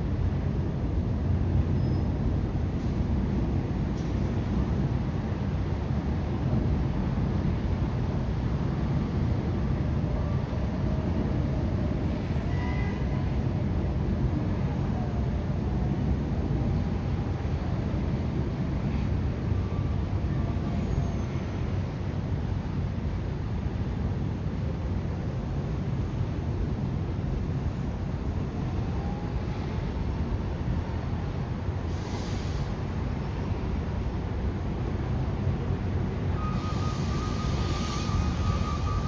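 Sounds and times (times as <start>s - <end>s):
low city rumble: 0.0s - 39.0s.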